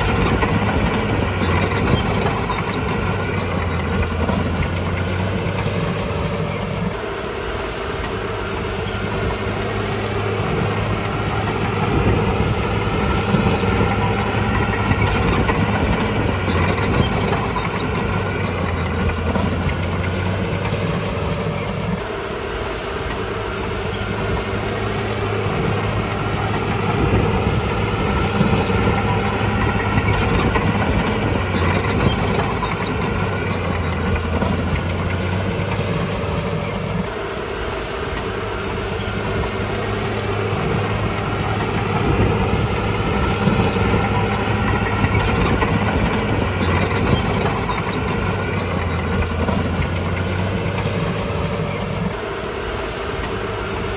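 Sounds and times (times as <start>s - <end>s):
bulldozer diesel engine running: 0.0s - 53.9s.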